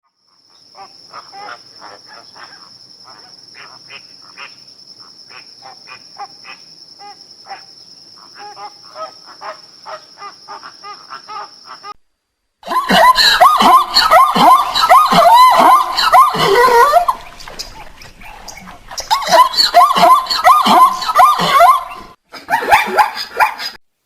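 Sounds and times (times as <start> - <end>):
high wavering animal cries: 12.9 - 22.1.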